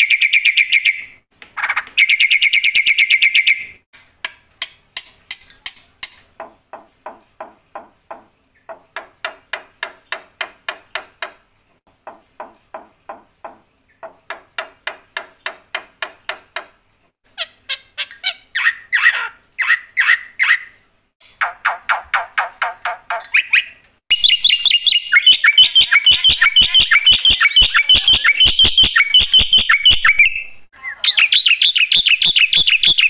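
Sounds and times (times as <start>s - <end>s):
bird singing rapid notes: 23.4s - 33.0s.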